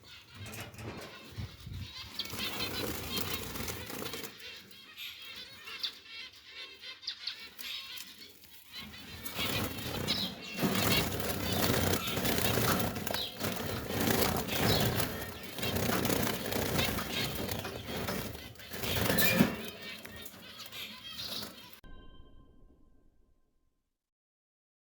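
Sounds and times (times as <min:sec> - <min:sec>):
finches chirping: 0:00.0 - 0:21.8
wings flapping and rustling: 0:00.1 - 0:05.1, 0:07.6 - 0:21.8.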